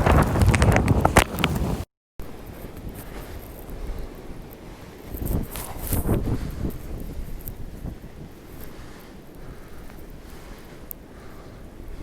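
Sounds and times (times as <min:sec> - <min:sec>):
sharp clicks or crunches: 0:00.0 - 0:01.8
wind buffeting microphone: 0:00.0 - 0:12.0.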